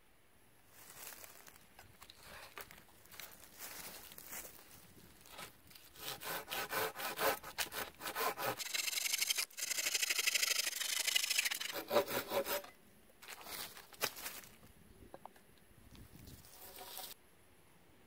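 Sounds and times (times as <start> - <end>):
hand saw cutting wood: 6.0 - 12.7.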